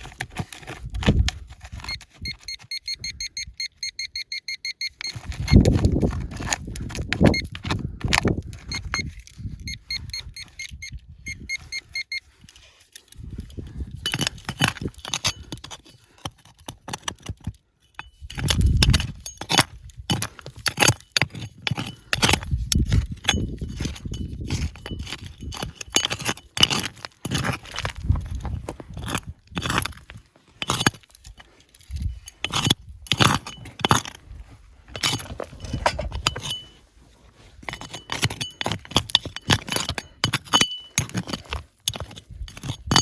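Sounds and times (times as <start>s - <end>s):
short ringing tones: 1.8s - 5.7s, 8.6s - 12.4s.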